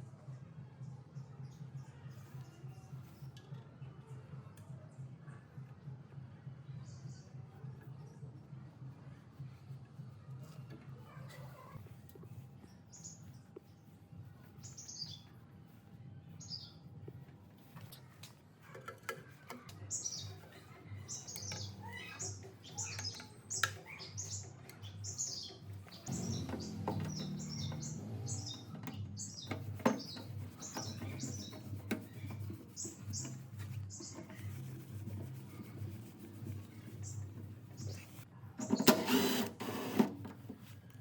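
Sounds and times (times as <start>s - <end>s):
small birds chirping: 11.0s - 17.2s, 19.6s - 38.9s.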